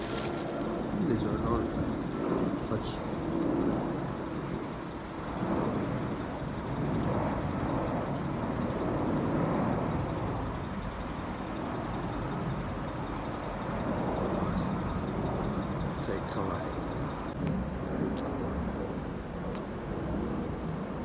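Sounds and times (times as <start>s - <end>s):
distant jet aircraft rumbling: 0.0s - 18.0s.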